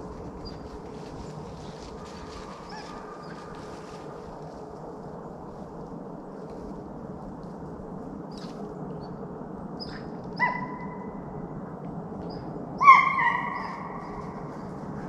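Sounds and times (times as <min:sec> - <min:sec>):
hounds baying: 0:12.8 - 0:15.0.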